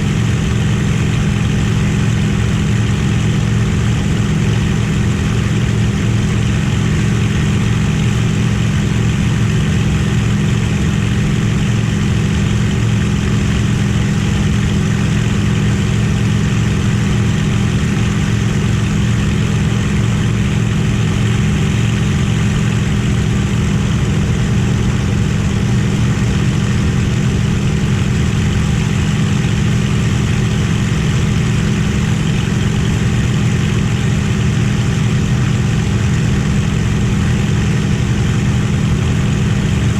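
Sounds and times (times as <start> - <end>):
piston aero engine drone: 0.0 - 39.9.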